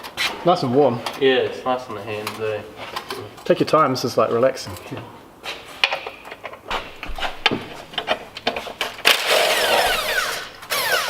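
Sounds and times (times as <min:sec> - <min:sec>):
power tool whining: 0:09.1 - 0:11.0.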